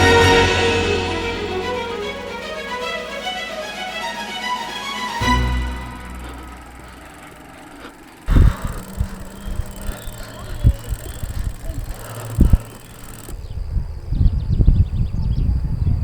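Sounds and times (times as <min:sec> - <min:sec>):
wind buffeting microphone: 0:08.1 - 0:16.0.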